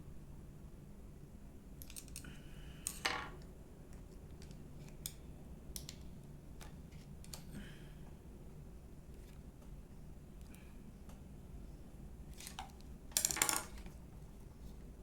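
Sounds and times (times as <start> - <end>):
small clicks and scrapes of parts: 1.8 - 5.2.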